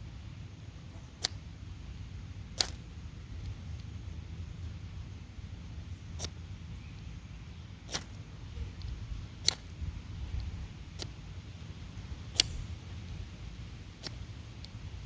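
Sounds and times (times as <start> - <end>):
low steady rumble: 0.0 - 15.0
lighter clicks: 2.6 - 2.8, 8.8 - 9.8, 12.3 - 13.2, 14.0 - 14.8.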